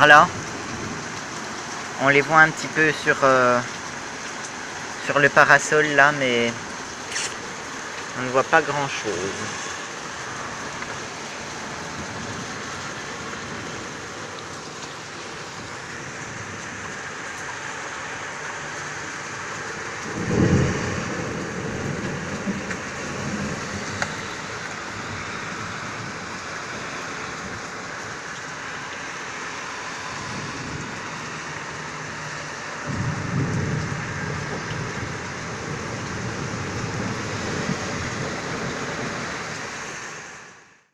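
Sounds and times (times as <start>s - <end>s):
rain falling steadily: 0.0s - 40.9s
low rolls of thunder: 20.0s - 24.2s, 32.8s - 39.4s.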